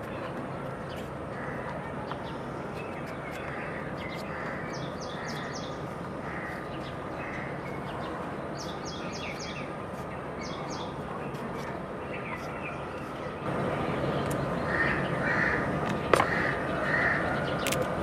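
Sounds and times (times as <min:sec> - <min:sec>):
outdoor background noise: 0:00.0 - 0:18.0
soft bird calls: 0:00.1 - 0:13.5
bird singing high chirps: 0:06.8 - 0:09.7.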